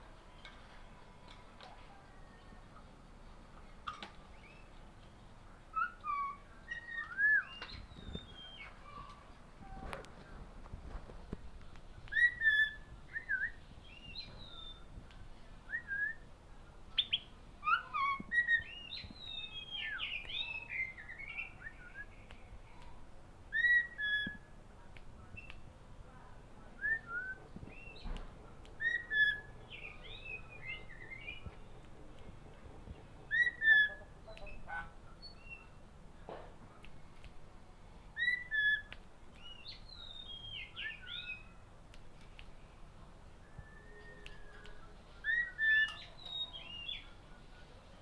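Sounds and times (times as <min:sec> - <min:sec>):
songbirds chirping and whistling: 0:00.0 - 0:25.7, 0:26.6 - 0:48.0.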